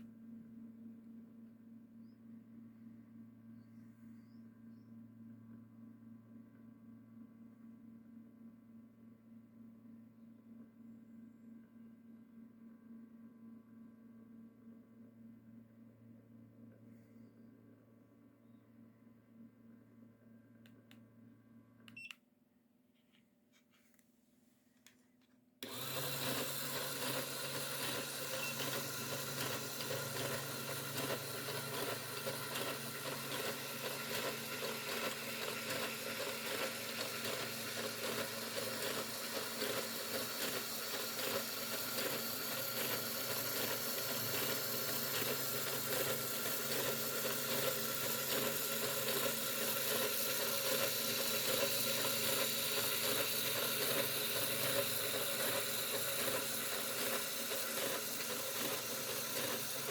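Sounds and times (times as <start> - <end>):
electric motor whirring: 25.6 - 59.9.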